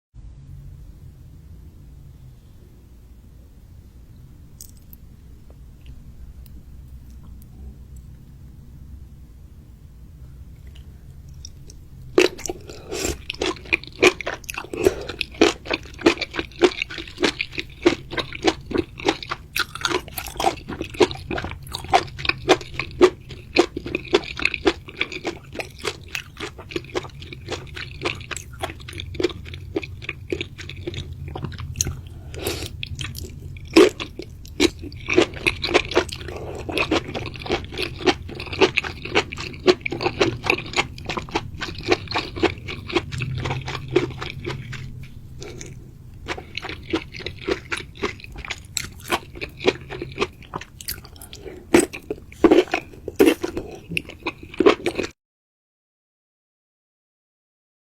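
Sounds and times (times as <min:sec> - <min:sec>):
person chewing crunchy food: 0:10.6 - 0:55.1.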